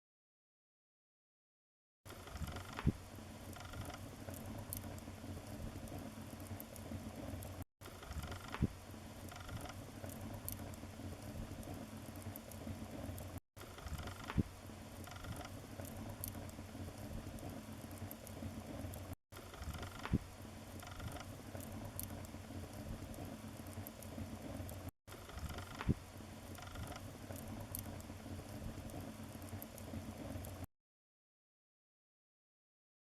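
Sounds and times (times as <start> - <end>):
wood fire crackling: 2.1 - 30.7
fire pops and snaps: 9.5 - 14.5, 15.3 - 20.3, 21.0 - 30.7.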